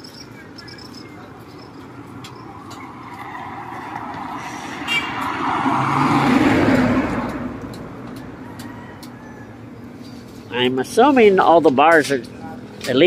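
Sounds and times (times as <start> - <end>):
vehicle passing by: 1.2 - 9.6.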